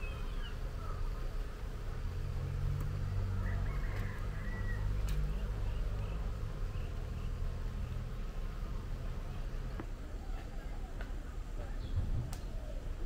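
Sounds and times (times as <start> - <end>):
faint bird chirps: 0.0 - 1.2.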